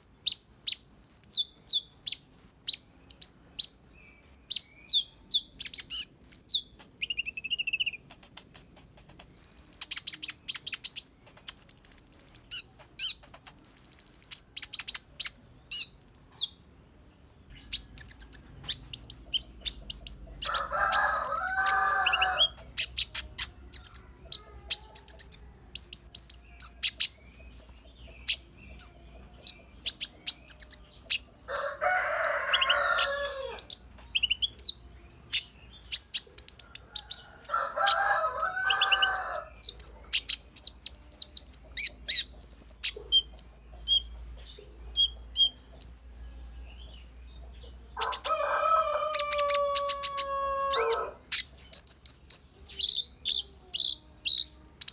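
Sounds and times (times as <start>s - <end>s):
sunbird singing high chirps and trills: 0.0s - 54.9s.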